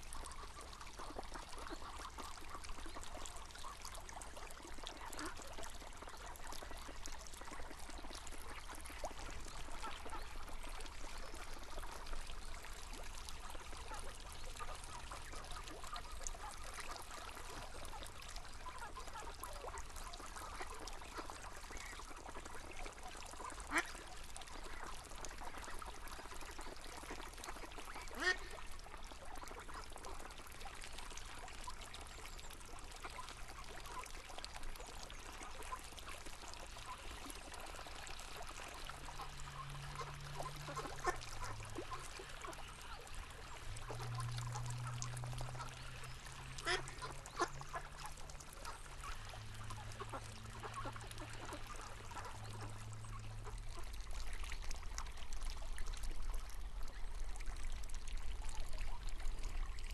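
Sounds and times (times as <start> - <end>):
river water flowing: 0.0 - 59.9
low steady hum: 0.1 - 59.9
ducks quacking: 23.6 - 24.0, 27.0 - 28.6, 39.0 - 52.8.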